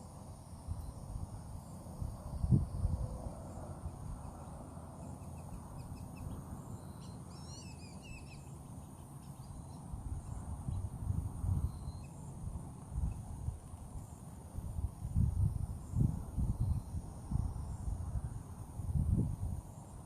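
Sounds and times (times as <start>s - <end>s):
high insect drone: 0.0s - 20.0s
bird chirping and warbling: 5.2s - 8.5s.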